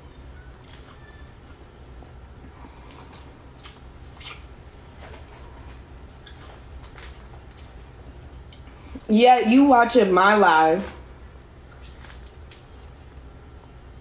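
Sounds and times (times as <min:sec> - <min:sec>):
low steady hum: 0:00.0 - 0:14.0
person chewing with lip smacks: 0:00.4 - 0:09.0.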